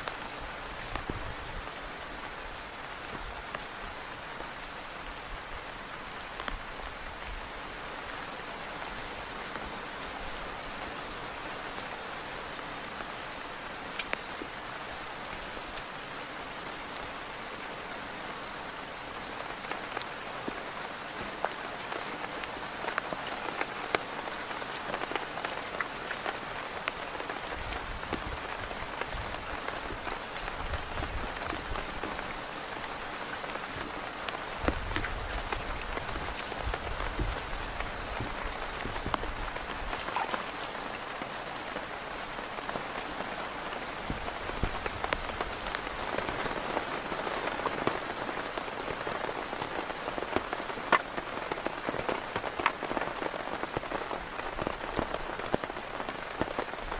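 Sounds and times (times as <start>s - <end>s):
heavy rain on a tent: 0.0s - 56.9s.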